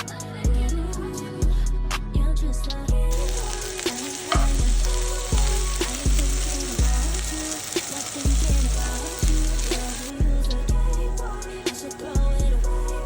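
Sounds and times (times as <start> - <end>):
meat sizzling in a pan: 3.1 - 10.3
music with booming bass beat: 4.3 - 7.4, 8.3 - 11.6, 12.2 - 13.0.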